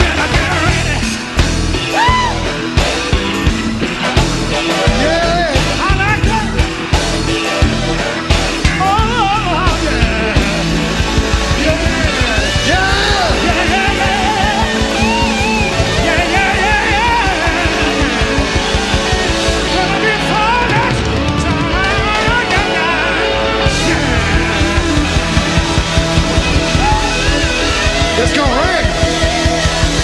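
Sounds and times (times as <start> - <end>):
drum and bass beat: 0.0 - 30.0
wavering lead melody: 0.0 - 30.0.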